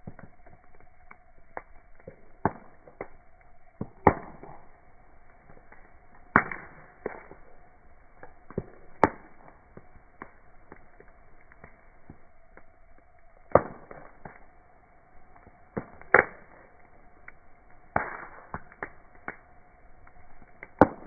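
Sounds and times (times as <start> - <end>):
campfire wood crackling: 0.0 - 21.0
sharp pops: 1.6 - 3.1, 3.8 - 4.8, 5.5 - 7.5, 8.2 - 12.2, 17.9 - 19.4, 20.6 - 21.0.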